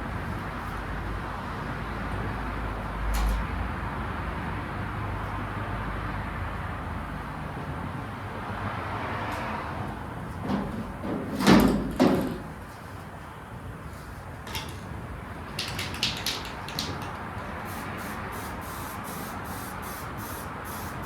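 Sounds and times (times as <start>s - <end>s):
paint spraying hiss: 17.6s - 21.0s.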